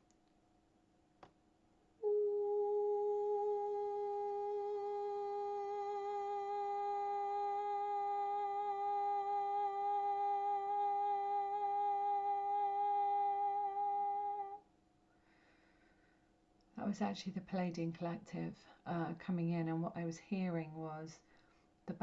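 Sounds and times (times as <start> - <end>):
woman humming a long note: 2.0 - 14.6.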